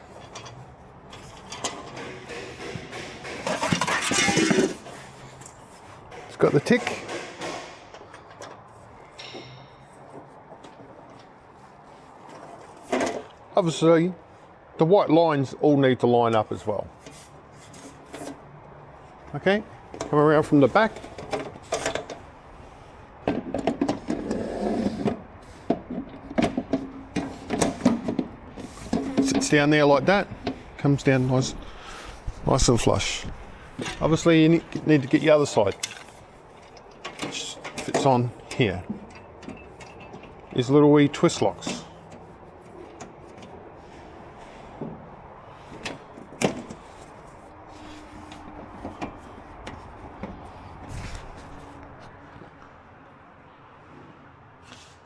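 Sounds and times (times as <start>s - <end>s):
handling knocks and clicks: 0.0s - 11.4s, 19.2s - 22.4s, 23.2s - 24.4s, 25.0s - 31.6s, 32.6s - 43.6s, 44.8s - 47.4s, 48.2s - 52.7s.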